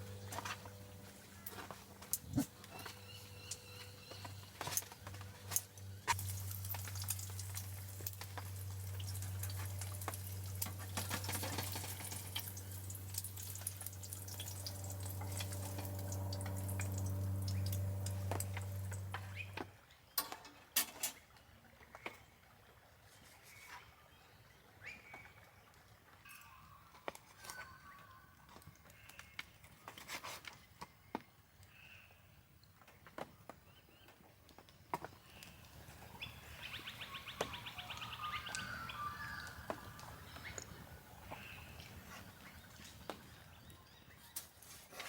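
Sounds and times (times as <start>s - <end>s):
electric pump humming: 0.0s - 19.6s
water running and splashing: 0.6s - 19.5s, 35.4s - 43.7s.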